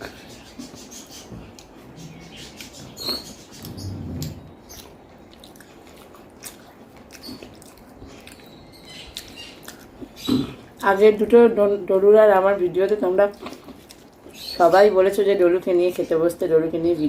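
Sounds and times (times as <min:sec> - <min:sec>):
person chewing food: 0:01.4 - 0:10.8, 0:13.3 - 0:14.4.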